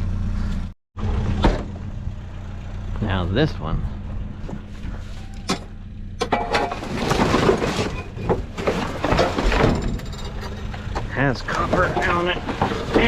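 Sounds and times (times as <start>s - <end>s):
low engine rumble: 0.0s - 13.0s
sink fittings clattering and scraping: 6.3s - 13.0s.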